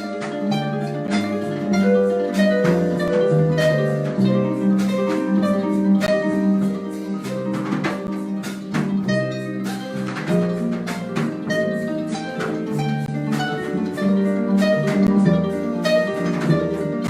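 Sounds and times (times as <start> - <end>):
harp melody and chords: 0.0 - 17.0
light percussion beat: 0.0 - 17.0
plucked bass line: 0.0 - 17.0.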